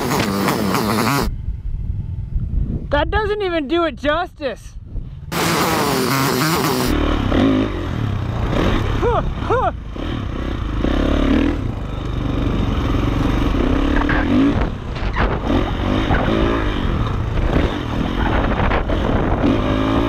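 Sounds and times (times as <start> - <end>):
dirt bike engine revving: 0.0 - 1.3, 5.3 - 20.0
bike knocks and clatter: 14.0 - 16.4.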